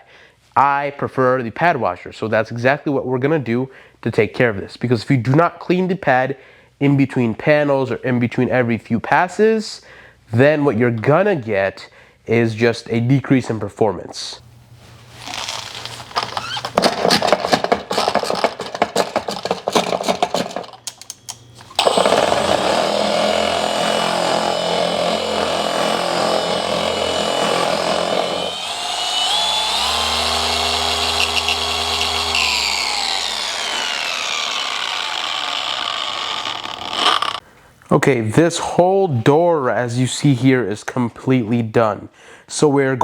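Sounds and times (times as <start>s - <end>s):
rapid rattling: 16.1s - 21.0s
electric machine polisher running: 21.8s - 37.4s.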